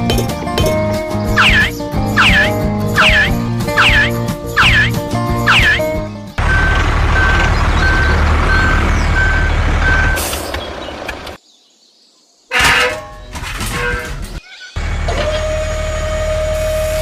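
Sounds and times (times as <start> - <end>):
reversing beeper beeping: 1.4 - 7.3
truck engine running: 2.2 - 11.0.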